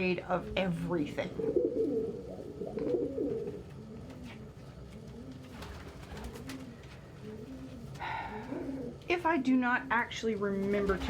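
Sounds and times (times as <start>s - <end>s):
pigeons cooing: 0.3s - 9.1s.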